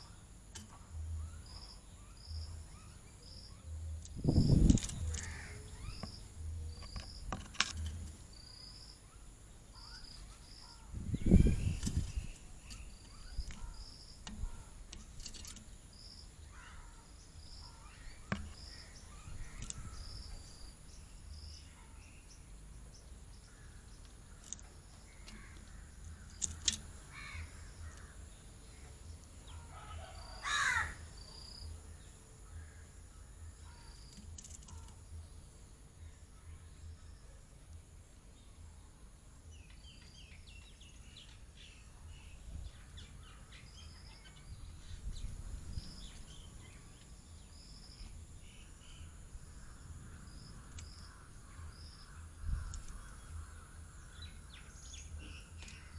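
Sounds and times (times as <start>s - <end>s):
harsh crow-like calls: 5.0s - 6.0s, 16.5s - 20.0s, 25.2s - 28.2s, 29.5s - 31.6s.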